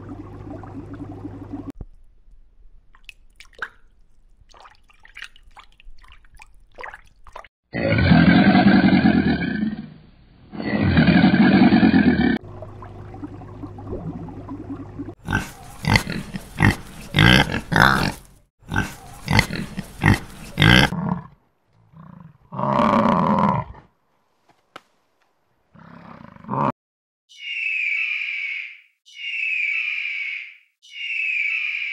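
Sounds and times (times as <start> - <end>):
deep animal roars: 7.7 - 12.4, 15.3 - 23.9
piglets squealing and grunting: 15.3 - 21.0.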